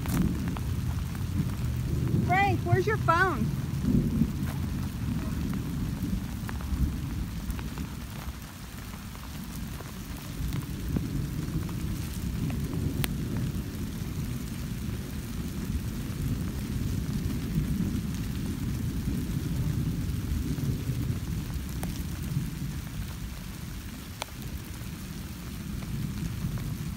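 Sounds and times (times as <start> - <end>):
wind rushing over microphone: 0.0 - 26.9
faint ticks: 24.2 - 24.5.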